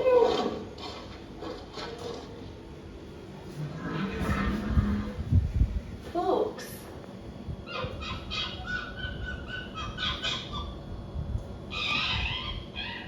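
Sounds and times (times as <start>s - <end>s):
harsh animal call: 3.6s - 5.2s, 11.7s - 13.0s
animal chirping: 7.7s - 10.8s, 11.7s - 13.0s.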